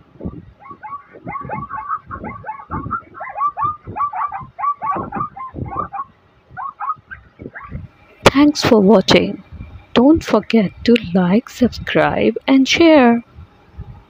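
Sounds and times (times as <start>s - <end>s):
zebra barking call: 0.2s - 7.9s.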